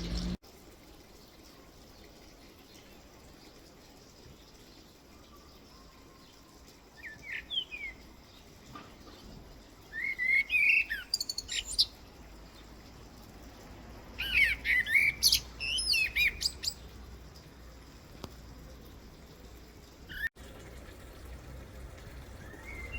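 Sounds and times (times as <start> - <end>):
songbird singing: 4.8 - 17.5, 20.1 - 20.3, 22.2 - 22.9.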